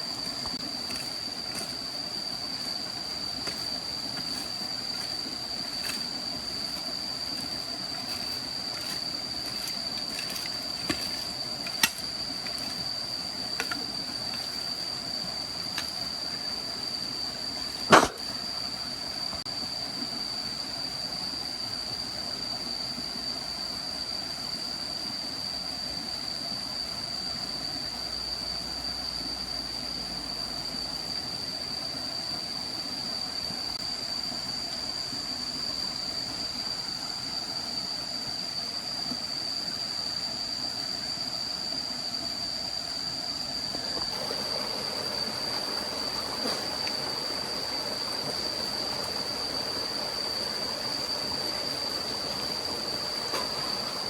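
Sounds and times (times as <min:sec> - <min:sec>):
running water: 0:00.0 - 0:18.8, 0:43.6 - 0:54.0
constant high-pitched tone: 0:00.0 - 0:54.0.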